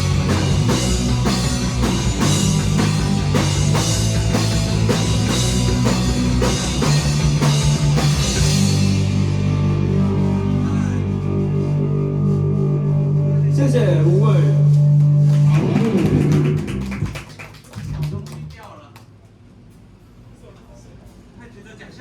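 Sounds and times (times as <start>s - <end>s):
drums and cymbals: 0.0s - 11.1s
live rock band playing: 0.0s - 12.2s, 15.3s - 17.0s.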